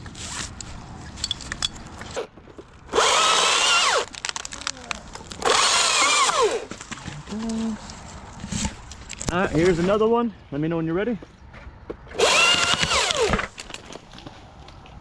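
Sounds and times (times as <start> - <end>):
chainsaw revving: 2.9 - 4.1, 5.4 - 6.7, 12.2 - 13.4.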